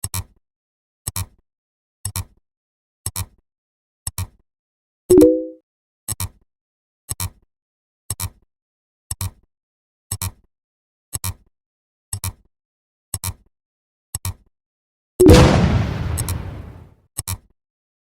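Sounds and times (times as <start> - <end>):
blast sound effect: 15.3 - 16.8.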